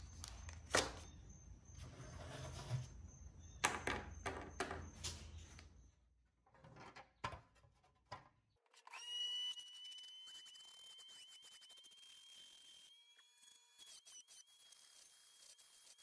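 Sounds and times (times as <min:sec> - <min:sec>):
rotary tool whine: 0:08.8 - 0:16.0.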